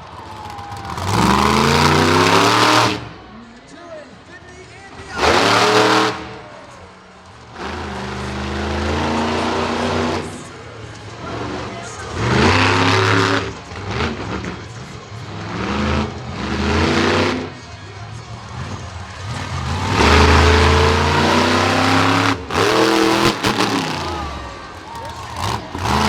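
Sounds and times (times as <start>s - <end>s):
truck engine revving: 0.0s - 3.3s, 5.0s - 6.5s, 7.3s - 26.0s.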